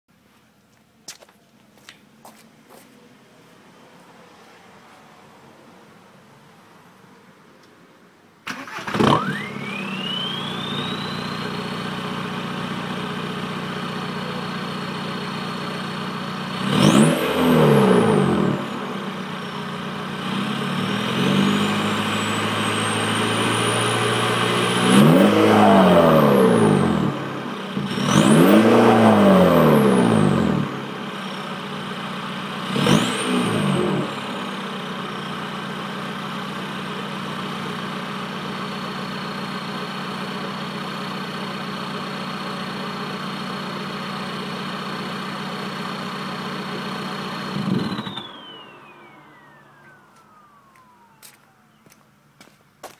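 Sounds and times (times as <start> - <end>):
diesel engine starting and revving: 8.4 - 52.5
turbo whistle: 9.3 - 11.5.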